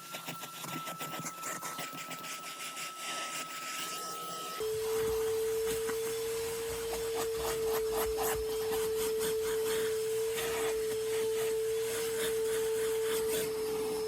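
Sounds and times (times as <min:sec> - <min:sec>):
vacuum cleaner whine: 0:00.0 - 0:14.0
nozzle rubbing on carpet: 0:04.9 - 0:14.0.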